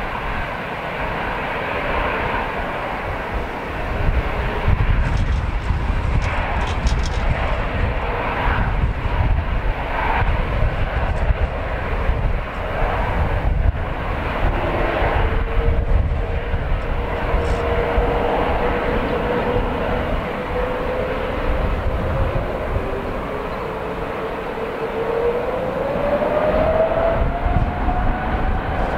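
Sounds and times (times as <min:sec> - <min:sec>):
jet engine whine: 0:00.0 - 0:28.9
jet engines roaring: 0:00.0 - 0:28.9
wind buffeting microphone: 0:00.0 - 0:28.9.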